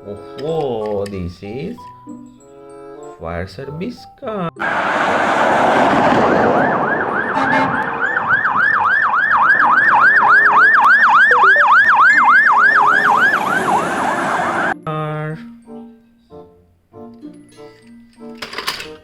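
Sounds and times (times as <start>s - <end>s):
toy siren yelping: 6.6s - 14.8s.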